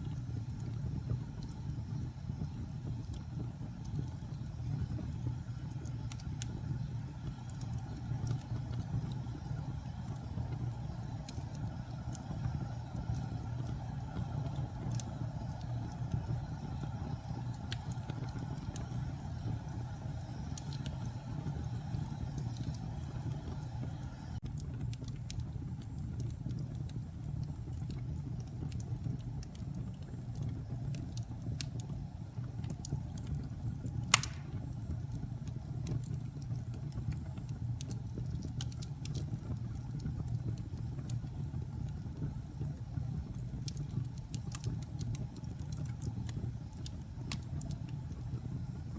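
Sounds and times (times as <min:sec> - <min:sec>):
fire crackling: 0:00.0 - 0:48.9
fire flames rumbling: 0:00.0 - 0:48.9
wood fire popping: 0:00.0 - 0:48.9.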